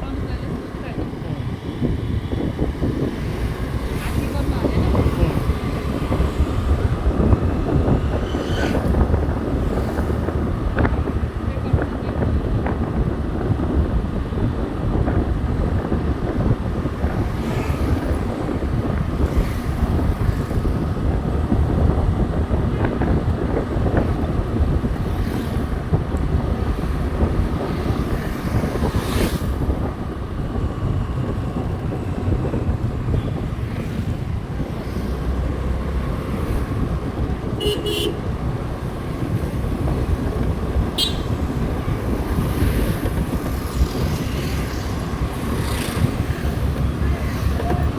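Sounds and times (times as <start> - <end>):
motorcycle running: 0.0 - 47.9
wind buffeting microphone: 0.0 - 47.9
short horn beeps: 41.0 - 41.4.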